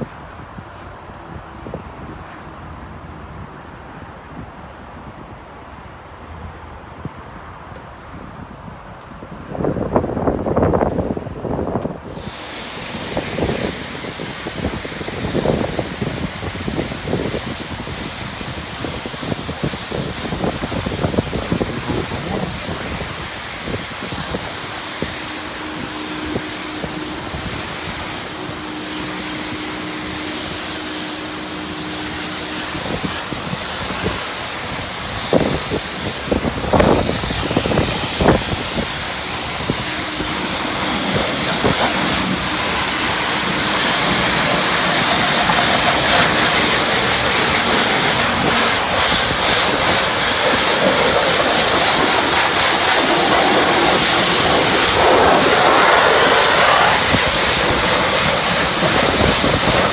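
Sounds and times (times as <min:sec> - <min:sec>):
pressure washer spraying car: 0:12.0 - 0:59.9.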